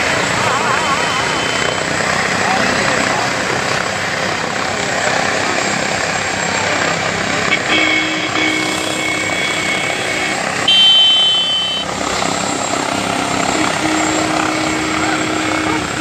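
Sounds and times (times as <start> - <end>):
helicopter rotor and engine: 0.0 - 16.0
high-pitched tone: 7.6 - 16.0.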